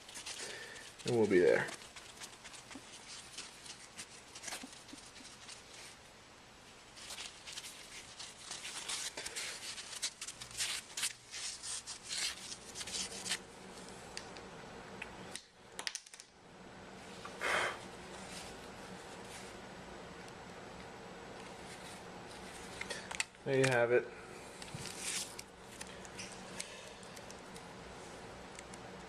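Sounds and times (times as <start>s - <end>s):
scratchy rubs on phone screen: 0.0s - 6.0s.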